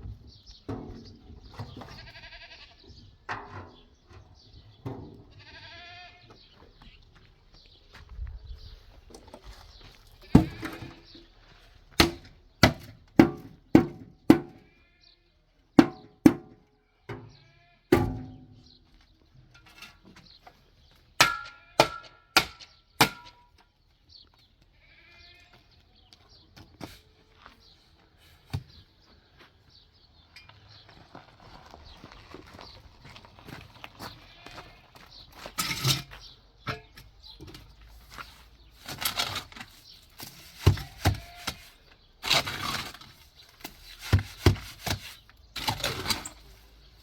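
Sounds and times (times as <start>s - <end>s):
livestock bleating: 1.9s - 3.0s, 5.3s - 6.4s, 14.6s - 15.3s, 17.3s - 18.0s, 24.7s - 25.7s
sharp ringing knocks: 21.2s - 23.4s.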